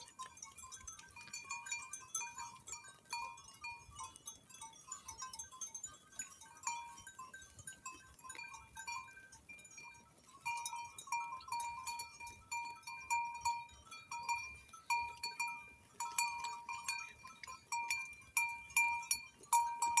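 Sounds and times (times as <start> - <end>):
sheep bells clinking: 0.0 - 20.0.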